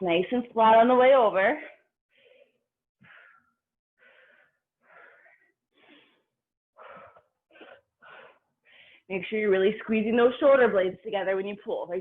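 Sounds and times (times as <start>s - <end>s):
person breathing heavily: 2.1s - 9.1s.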